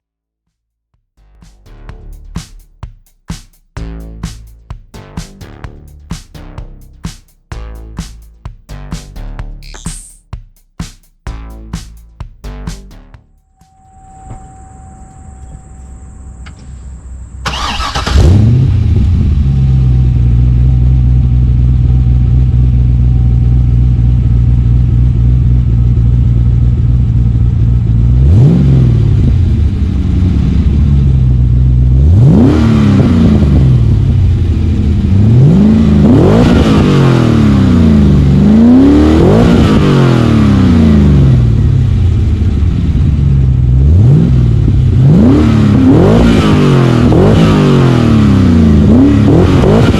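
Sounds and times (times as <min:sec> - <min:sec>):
car engine revving: 0:11.3 - 0:49.9
car engine starting: 0:11.3 - 0:49.9
car engine idling: 0:11.4 - 0:32.2.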